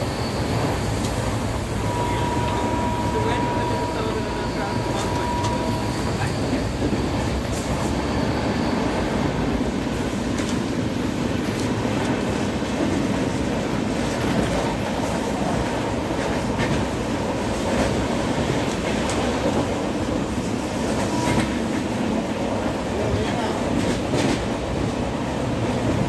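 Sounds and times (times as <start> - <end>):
train wheels rumbling on track: 0.0 - 26.0.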